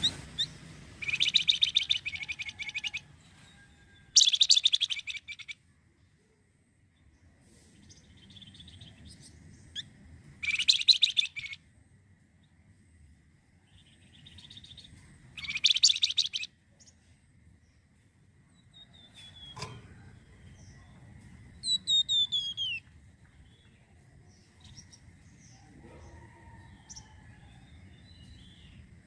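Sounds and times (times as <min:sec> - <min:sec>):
buzzy bird trill: 0:00.0 - 0:03.1, 0:04.0 - 0:05.6, 0:07.8 - 0:11.6, 0:13.8 - 0:16.9, 0:21.6 - 0:22.9
descending whistled bird notes: 0:00.0 - 0:03.1, 0:04.2 - 0:05.6, 0:13.8 - 0:16.5, 0:21.6 - 0:22.9
songbird singing: 0:00.0 - 0:29.0.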